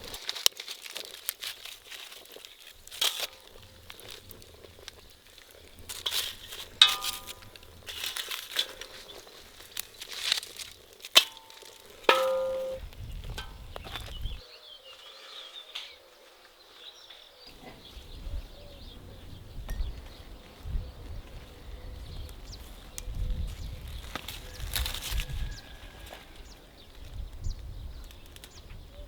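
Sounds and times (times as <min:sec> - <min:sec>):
crinkling and rustling: 0:00.0 - 0:14.4, 0:21.3 - 0:27.4
small birds chirping: 0:01.0 - 0:29.0
metal cookware clinks: 0:06.8 - 0:09.2, 0:11.2 - 0:12.8.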